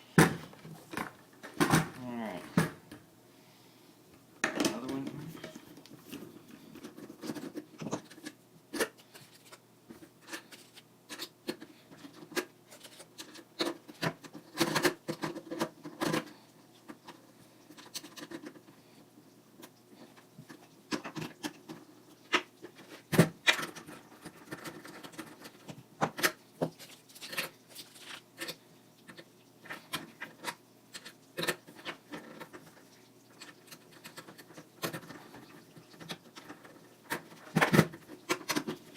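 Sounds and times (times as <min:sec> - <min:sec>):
skateboard parts clicking and knocking: 0:33.4 - 0:38.9.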